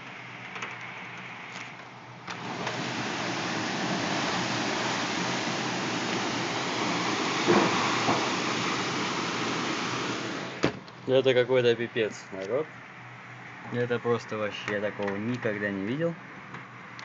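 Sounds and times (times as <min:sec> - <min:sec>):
torrential rain pouring: 0:02.3 - 0:10.6.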